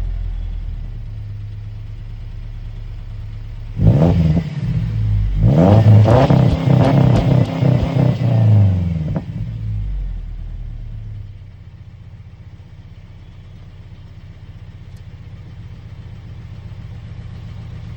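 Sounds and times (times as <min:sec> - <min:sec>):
car engine revving and idling: 0:00.0 - 0:17.9.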